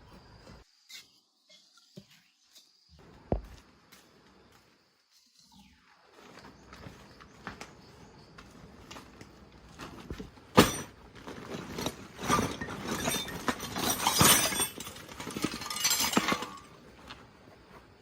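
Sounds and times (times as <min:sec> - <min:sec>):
metal hand tools clinking: 0:11.5 - 0:16.8.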